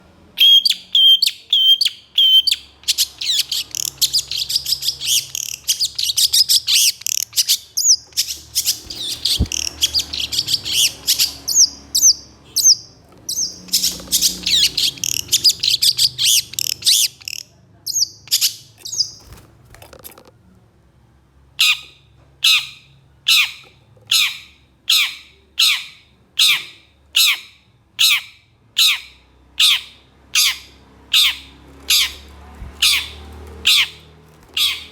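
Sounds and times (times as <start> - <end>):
shrike chattering song: 0.4 - 17.5.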